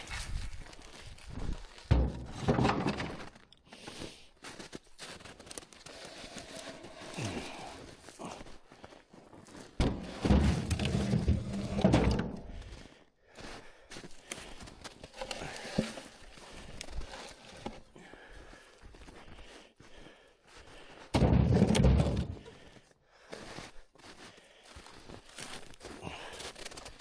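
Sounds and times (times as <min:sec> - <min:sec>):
dull heavy thuds: 0:09.8 - 0:12.6.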